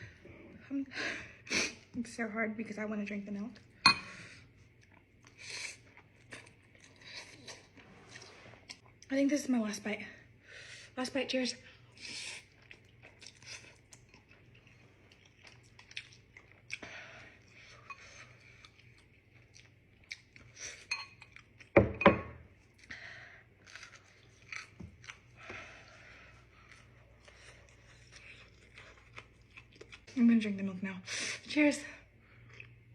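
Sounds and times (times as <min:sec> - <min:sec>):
person chewing noodles: 0:04.3 - 0:09.1, 0:11.7 - 0:21.7, 0:23.5 - 0:30.1, 0:32.2 - 0:32.9.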